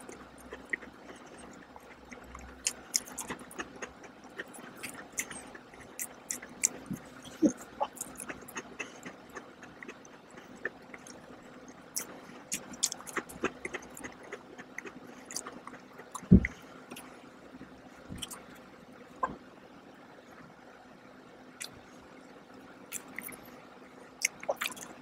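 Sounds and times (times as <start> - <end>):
chewing with wet mouth clicks: 0.0 - 17.1, 18.2 - 18.4, 22.9 - 23.4, 24.2 - 25.0.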